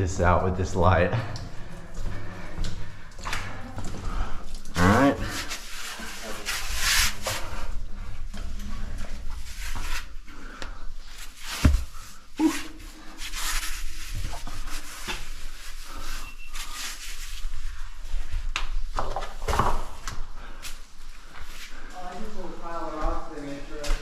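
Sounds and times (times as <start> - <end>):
clothing and boots scuffing stone: 11.4 - 12.1.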